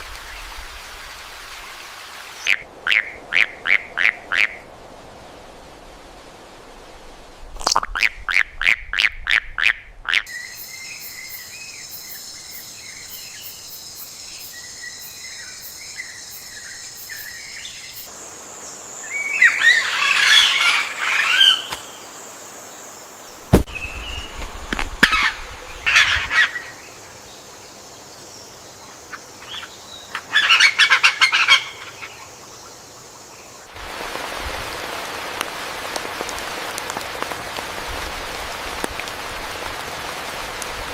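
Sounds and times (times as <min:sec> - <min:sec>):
rain: 0:00.0 - 0:08.1, 0:10.3 - 0:32.1, 0:32.7 - 0:40.9
sharp knock: 0:23.5 - 0:23.7.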